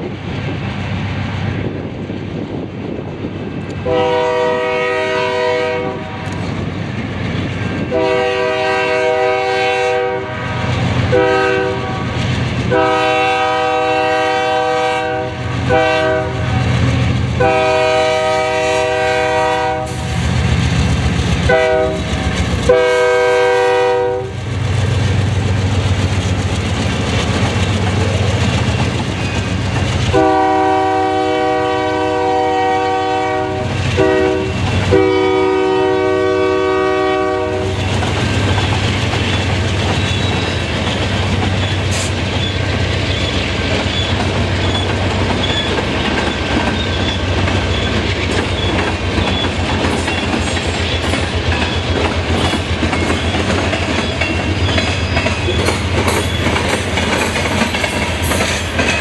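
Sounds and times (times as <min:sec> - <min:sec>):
diesel locomotives rumbling: 0:00.0 - 0:59.0
locomotive air horn blasts: 0:03.8 - 0:06.3, 0:07.9 - 0:16.7, 0:17.4 - 0:20.2, 0:21.5 - 0:22.1, 0:22.7 - 0:24.4, 0:30.1 - 0:37.8
hopper cars clattering on rails: 0:05.3 - 0:09.4, 0:10.5 - 0:31.0, 0:33.6 - 0:35.1, 0:37.6 - 0:59.0.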